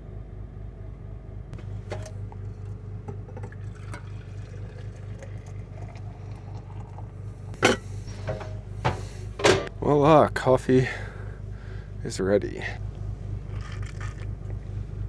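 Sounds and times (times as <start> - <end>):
low machine hum: 0.0 - 15.0
coffee pouring into a cup: 2.0 - 7.6.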